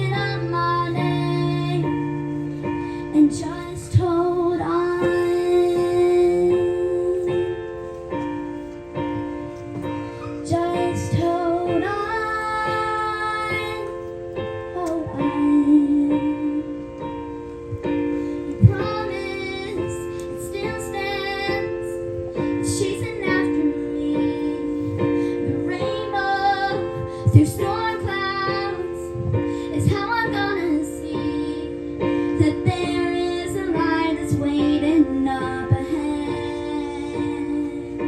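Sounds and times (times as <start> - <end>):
young female voices singing: 0.0 - 2.5, 3.1 - 7.6, 10.3 - 14.0, 18.5 - 38.0
piano accompaniment: 0.0 - 38.0.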